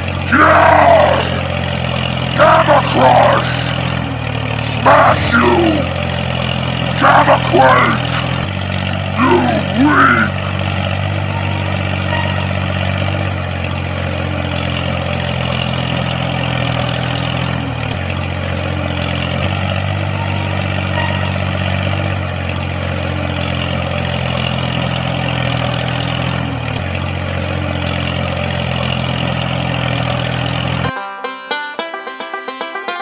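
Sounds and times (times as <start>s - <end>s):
small tractor engine running: 0.0s - 31.2s.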